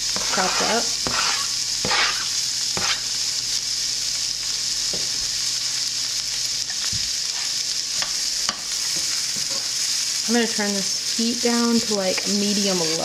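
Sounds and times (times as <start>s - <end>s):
onion sizzling in a frying pan: 0.0s - 13.0s.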